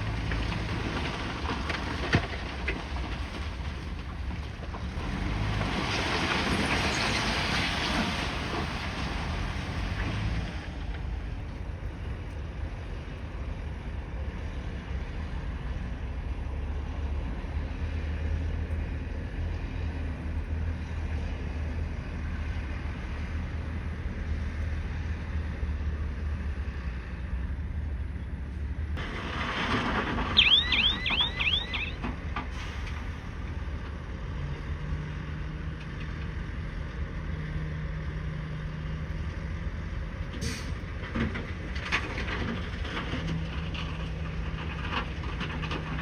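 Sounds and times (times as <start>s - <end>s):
bulldozer diesel engine rumbling: 0.0s - 46.0s
crawler tracks squeaking: 29.0s - 32.2s.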